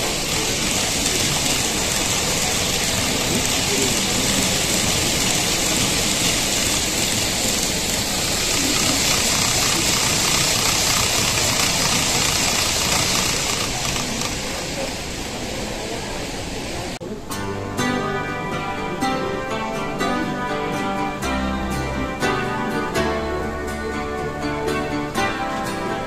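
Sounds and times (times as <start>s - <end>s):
gentle guitar music: 0.0s - 7.1s, 17.0s - 26.0s
model train whirring on track: 0.0s - 17.1s.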